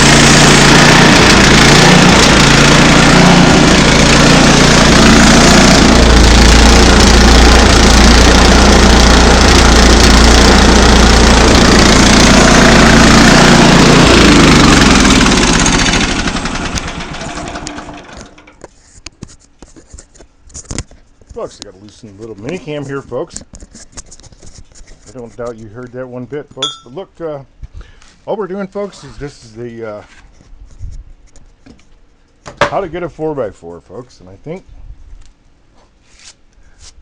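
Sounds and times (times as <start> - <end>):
sawmill engine cutting log: 0.0 - 18.5.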